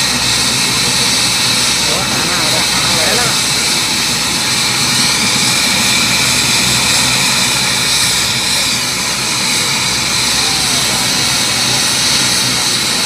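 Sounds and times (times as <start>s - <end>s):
helicopter turbine and rotor: 0.0s - 13.0s.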